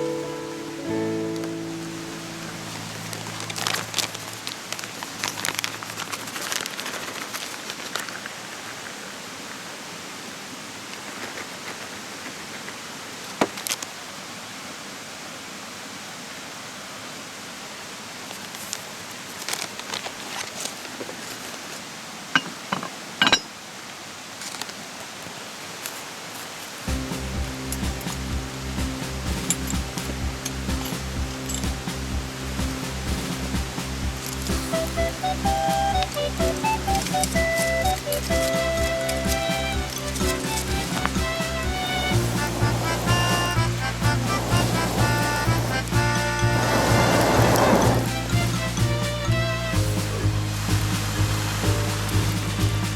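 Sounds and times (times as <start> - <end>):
wood fire crackling and popping: 2.6 - 8.1, 26.9 - 48.1.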